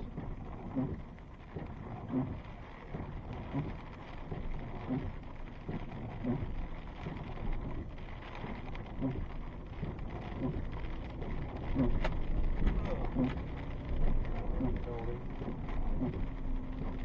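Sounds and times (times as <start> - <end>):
rain: 0.0 - 17.0
wind: 0.0 - 17.0
windshield wipers sweeping: 0.0 - 17.0.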